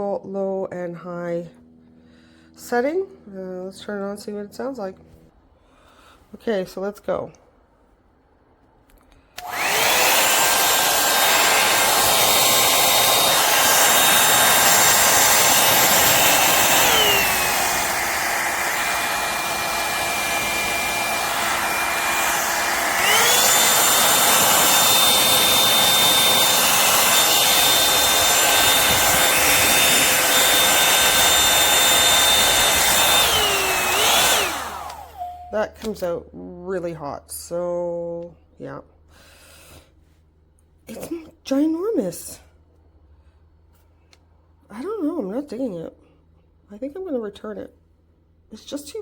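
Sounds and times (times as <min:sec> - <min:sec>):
hot air brush fan motor: 0:09.4 - 0:35.7.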